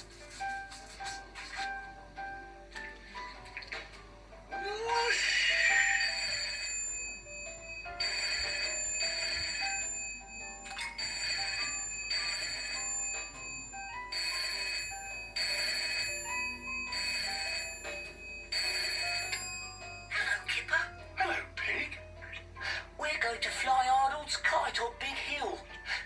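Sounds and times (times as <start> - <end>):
light background music: 0.0 - 26.0
cartoon telephone ringing: 4.9 - 21.2.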